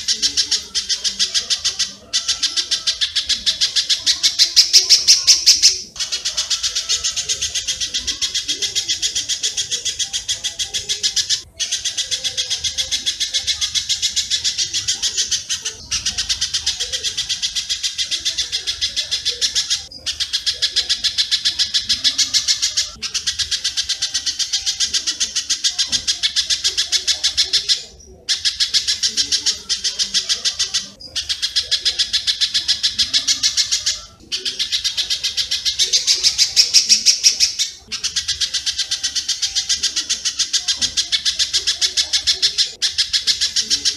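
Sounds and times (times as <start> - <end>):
bird song rapid high chirps: 0.0 - 43.9.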